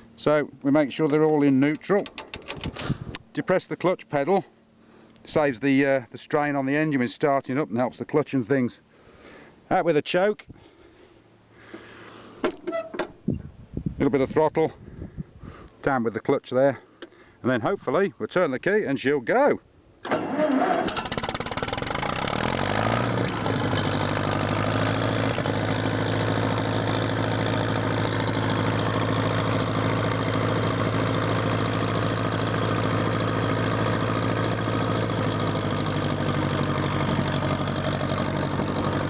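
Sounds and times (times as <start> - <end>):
tractor engine starting and idling: 0.0 - 3.5, 20.0 - 39.0.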